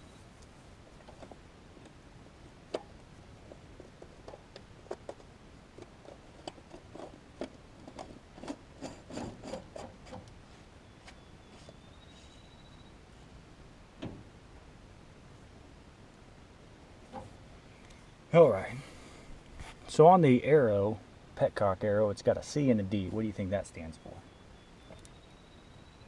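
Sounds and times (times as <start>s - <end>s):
scrapes and clicks of parts: 3.4s - 10.4s.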